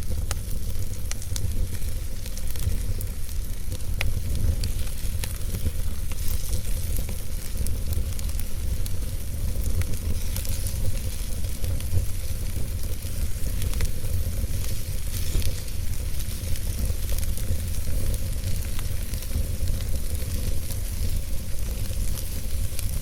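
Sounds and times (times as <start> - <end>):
fire crackling and popping: 0.0 - 23.0
fire rumbling and hissing: 0.0 - 23.0.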